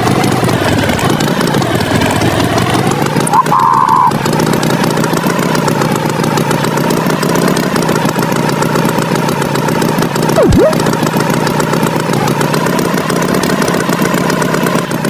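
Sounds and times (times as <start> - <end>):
cartoon tractor engine: 0.0 - 15.0
short high tone: 10.4 - 10.8
swooping sound effect: 10.4 - 10.8.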